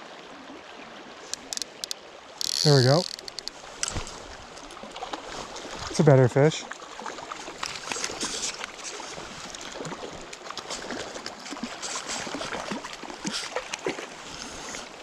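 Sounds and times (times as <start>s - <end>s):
river water flowing: 0.0s - 15.0s
short irregular splashes: 6.6s - 15.0s.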